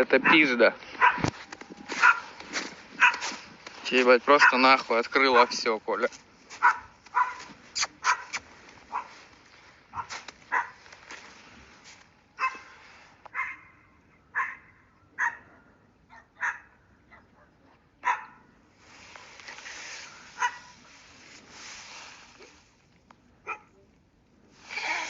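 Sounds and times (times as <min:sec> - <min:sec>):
dog barking: 0:00.2 - 0:01.3, 0:02.0 - 0:02.3, 0:03.0 - 0:03.4, 0:04.3 - 0:04.7, 0:05.3 - 0:05.6, 0:06.6 - 0:09.2, 0:09.9 - 0:10.8, 0:12.4 - 0:18.5, 0:20.4 - 0:20.8, 0:23.4 - 0:23.8.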